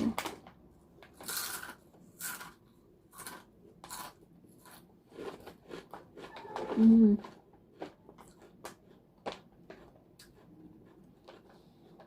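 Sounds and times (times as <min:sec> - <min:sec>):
potato chips crunching: 0:01.0 - 0:12.0.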